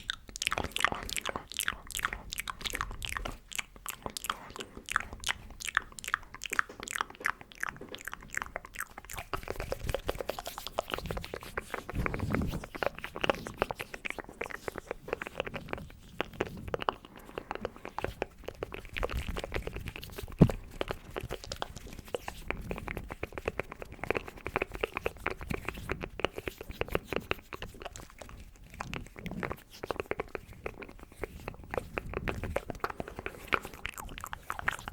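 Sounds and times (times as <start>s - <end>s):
wet mouth clicks and smacks: 0.0s - 34.9s
soft rubbing: 9.2s - 34.9s.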